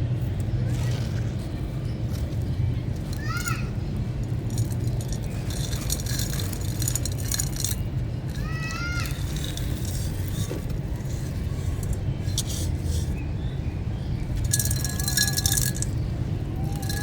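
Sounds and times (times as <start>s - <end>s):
stony chunks crunching: 4.2s - 10.8s.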